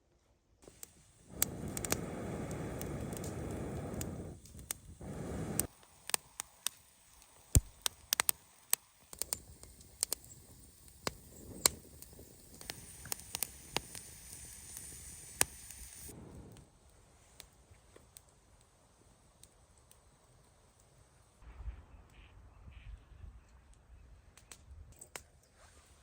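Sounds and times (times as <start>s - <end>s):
campfire crackling: 0.6s - 21.4s
rustle: 24.9s - 26.0s.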